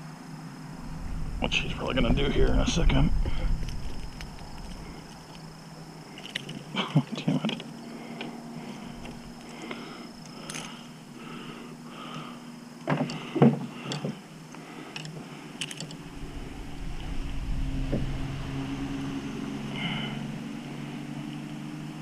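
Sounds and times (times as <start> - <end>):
motorboat motor drone: 0.6 - 1.7, 16.0 - 22.0.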